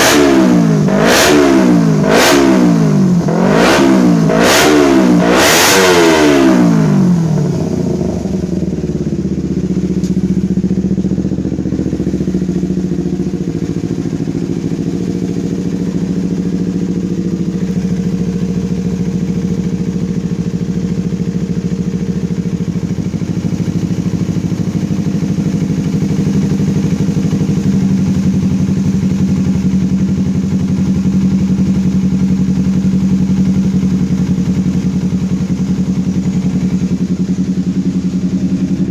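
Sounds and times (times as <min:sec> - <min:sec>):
engine revving and idling: 0:00.0 - 0:38.9.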